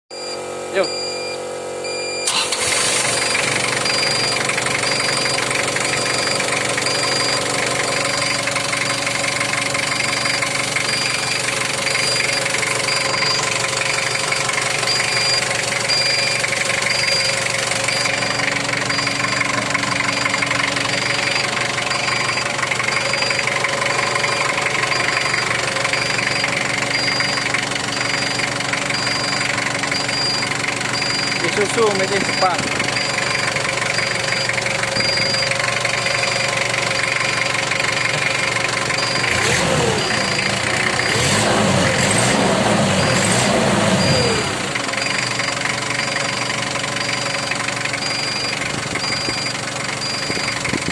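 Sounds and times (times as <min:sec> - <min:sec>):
short high beeps: 0:00.1 - 0:02.5, 0:10.0 - 0:37.2, 0:48.0 - 0:50.6
diesel engine clattering: 0:00.2 - 0:50.9.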